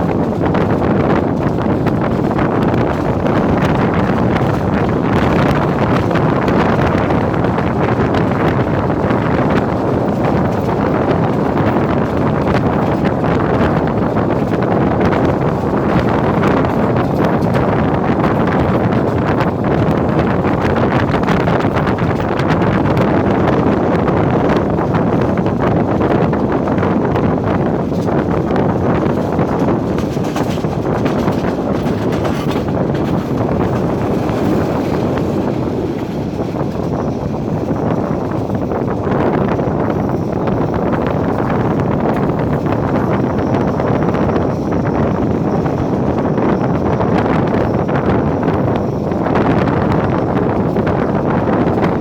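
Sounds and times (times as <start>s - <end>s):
train wheels rumbling on rails: 0.0s - 52.0s
wind rushing on microphone: 0.0s - 52.0s.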